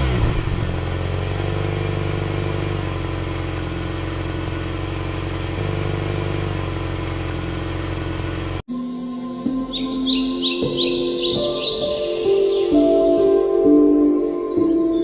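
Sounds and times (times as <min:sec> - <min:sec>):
tractor engine running: 0:00.0 - 0:08.6.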